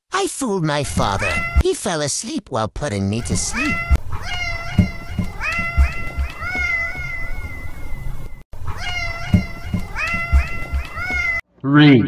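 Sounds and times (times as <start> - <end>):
kitten meowing: 3.3 - 8.0, 8.7 - 11.4.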